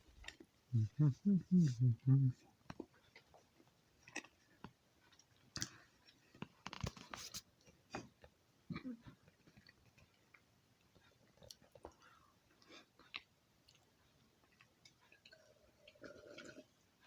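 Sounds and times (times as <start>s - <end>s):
person chewing and eating: 0.0s - 16.9s.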